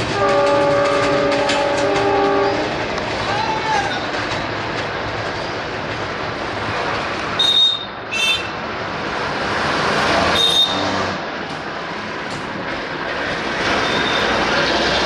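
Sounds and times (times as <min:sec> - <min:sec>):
train wheels rumbling on rail: 0:00.0 - 0:15.0
high wheel squeals: 0:13.7 - 0:14.5.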